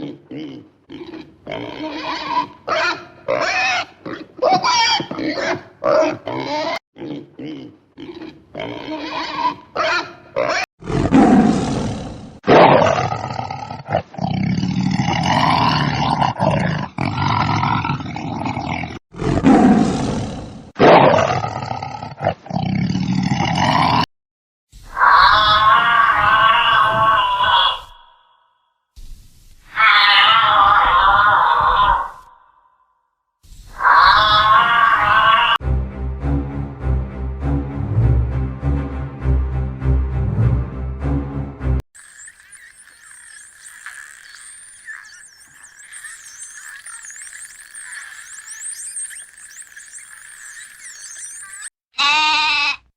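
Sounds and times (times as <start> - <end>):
farm animal crying: 25.0 - 28.1, 29.7 - 32.3, 33.8 - 35.6, 49.2 - 52.9.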